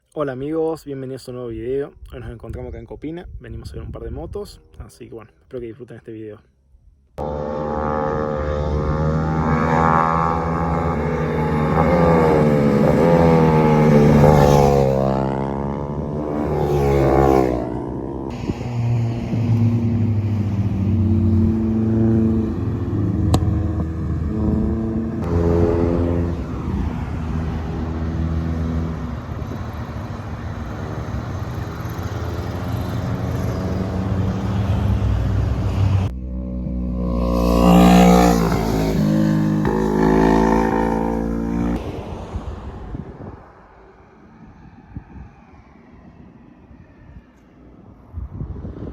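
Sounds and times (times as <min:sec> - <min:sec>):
engine revving: 0:07.2 - 0:42.0
vehicle engines humming: 0:07.2 - 0:46.8.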